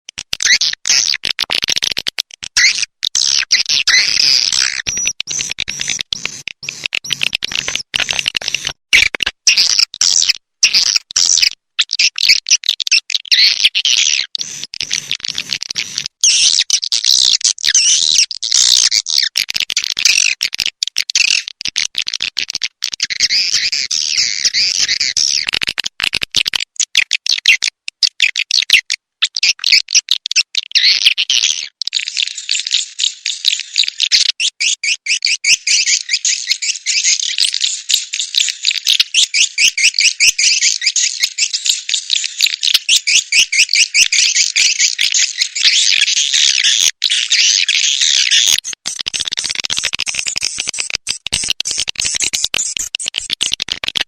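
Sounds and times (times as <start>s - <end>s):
swiftlets chirping and twittering: 2.6s - 8.8s, 31.9s - 53.6s.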